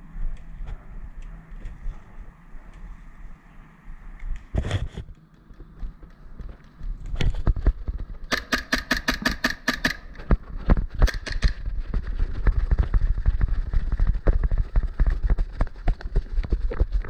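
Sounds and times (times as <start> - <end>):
running footsteps: 4.4 - 17.0
airsoft rifle shots: 8.2 - 10.3, 11.0 - 11.7.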